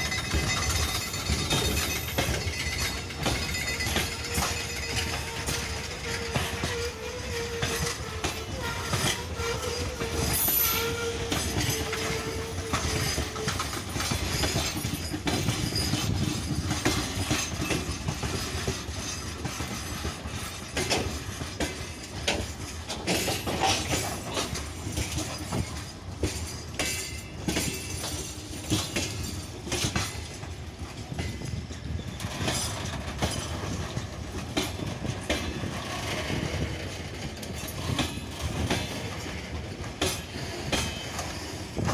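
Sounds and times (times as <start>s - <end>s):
wheels squealing: 0.0s - 16.3s
train wheels clicking on rail joints: 0.0s - 41.9s.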